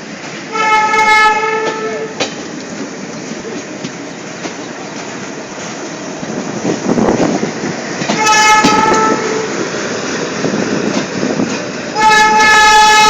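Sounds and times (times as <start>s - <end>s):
train rumble and wheel clatter: 0.0s - 13.0s
locomotive horn blast: 0.5s - 2.1s, 8.1s - 9.5s, 11.9s - 13.0s.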